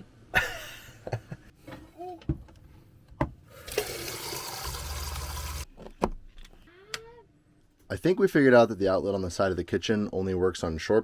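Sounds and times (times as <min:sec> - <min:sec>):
water running into a sink: 0:03.6 - 0:05.7.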